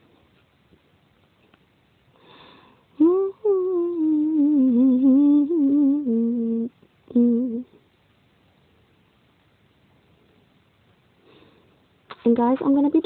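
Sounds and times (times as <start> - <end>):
breath: 2.2 - 2.9, 11.2 - 11.8
girl humming: 3.0 - 7.7.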